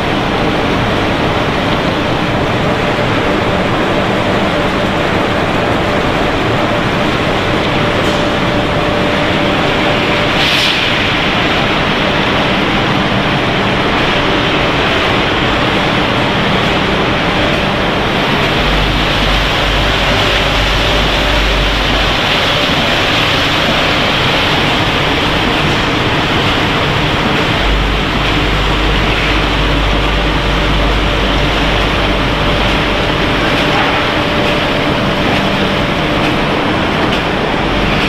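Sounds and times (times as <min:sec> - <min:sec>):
production line machinery running: 0:00.0 - 0:38.0
deep low rumble: 0:13.6 - 0:38.0.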